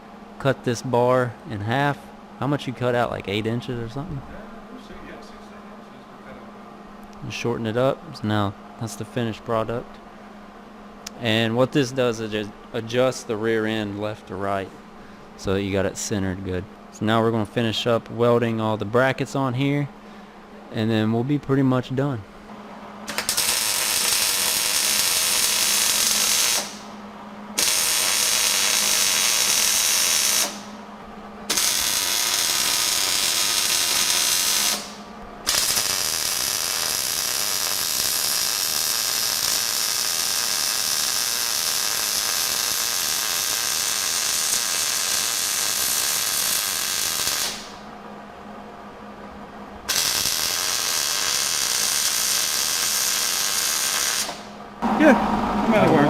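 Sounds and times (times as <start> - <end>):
welder frying crackle: 23.1 - 26.8, 27.6 - 30.7, 31.5 - 47.8, 49.9 - 54.5.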